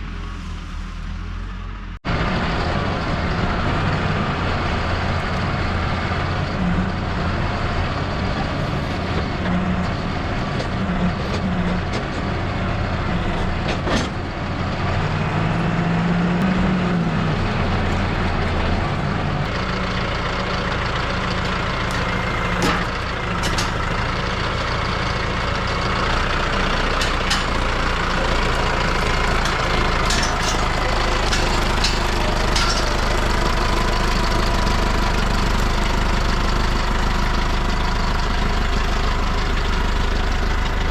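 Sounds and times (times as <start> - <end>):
heavy engine running: 0.0 - 40.9
sharp knocks and clanks: 21.9 - 23.9, 26.9 - 33.2.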